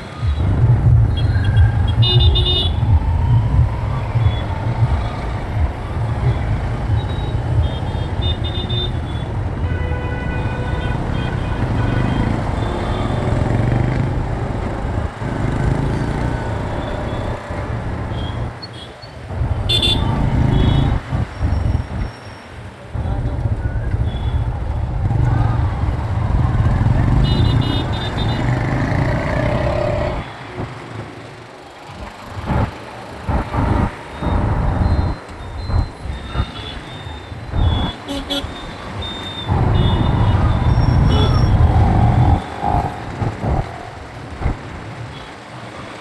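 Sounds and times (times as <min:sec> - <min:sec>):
motorcycle engine rumble: 0:00.0 - 0:18.6, 0:19.3 - 0:22.1, 0:23.0 - 0:45.4
vehicle horns honking: 0:01.1 - 0:02.9, 0:06.2 - 0:14.1, 0:15.5 - 0:21.9, 0:26.8 - 0:30.4, 0:34.2 - 0:42.8.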